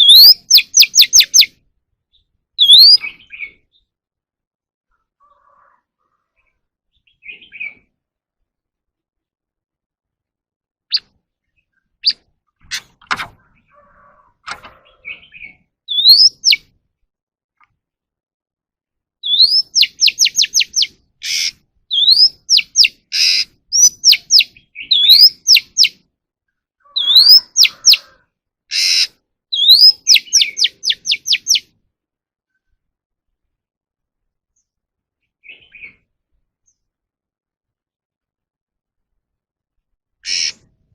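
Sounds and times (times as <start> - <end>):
songbird whistling song: 0.0 - 3.9, 6.9 - 7.9, 10.9 - 12.3, 14.8 - 16.7, 19.2 - 26.0, 26.8 - 28.1, 28.9 - 31.8, 35.4 - 36.1
harsh raspy bird notes: 19.2 - 25.9, 26.8 - 28.0, 28.7 - 31.7, 40.2 - 40.8.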